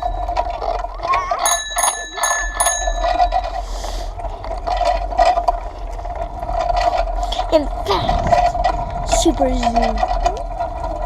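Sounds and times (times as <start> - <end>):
bicycle bell ringing: 0.0 - 3.7.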